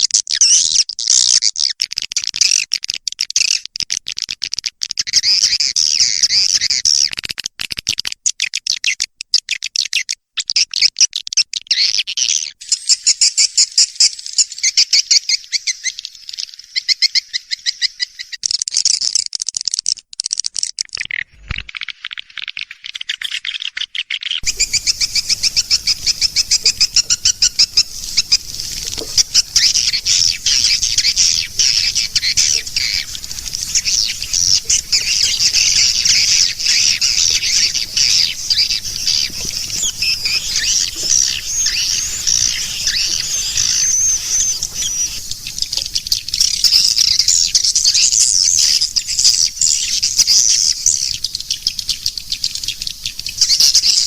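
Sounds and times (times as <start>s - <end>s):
swiftlet chirps and twitters: 20.9s - 54.0s.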